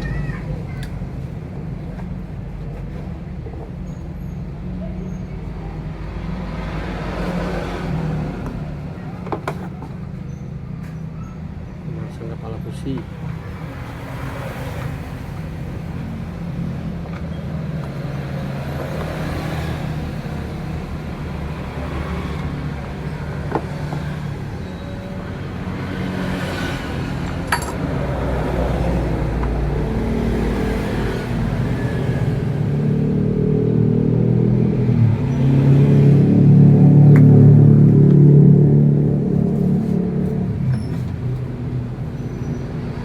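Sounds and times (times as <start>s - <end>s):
vehicle engine humming: 0.0s - 43.0s.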